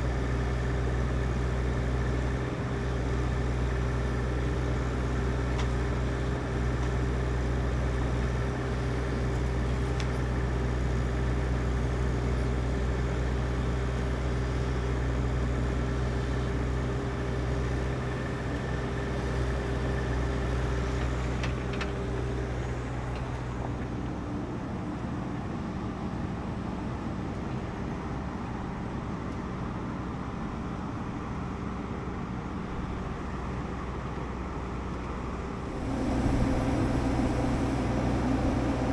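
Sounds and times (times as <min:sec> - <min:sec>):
engine running with deep hum: 0:00.0 - 0:38.9
steady tone: 0:35.6 - 0:38.9.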